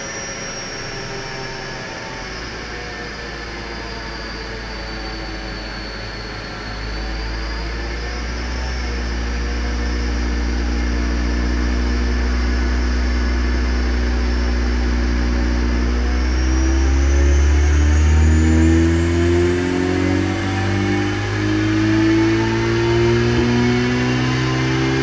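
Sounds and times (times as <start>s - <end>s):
thin high whine: 0.0s - 25.0s
car engine revving under load: 8.9s - 25.0s.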